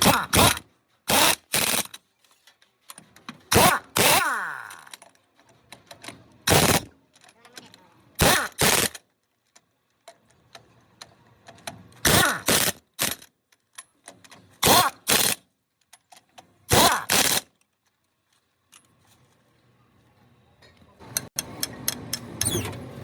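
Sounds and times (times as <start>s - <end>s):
pneumatic impact wrench bursts: 0.0s - 2.0s, 3.5s - 5.0s, 6.4s - 7.0s, 8.2s - 9.0s, 12.0s - 13.3s, 14.6s - 15.5s, 16.7s - 17.5s, 22.2s - 22.8s.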